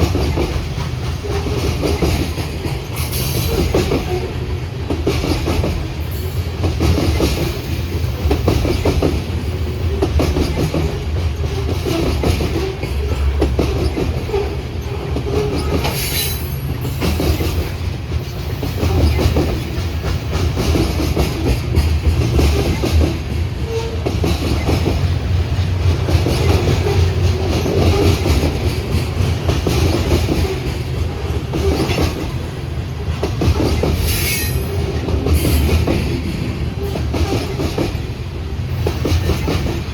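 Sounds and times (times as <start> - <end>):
train rumbling past: 0.0 - 39.9
wheels clacking over rail joints: 0.0 - 39.9
high wheel squeals: 34.0 - 34.8.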